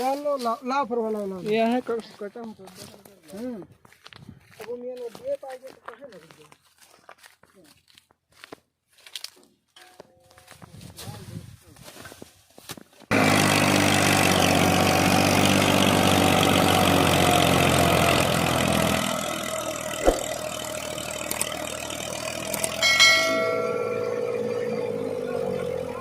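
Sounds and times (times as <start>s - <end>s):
tractor diesel engine running: 13.1s - 26.0s
sharp click: 20.0s - 20.4s
wavering higher tone: 22.8s - 26.0s.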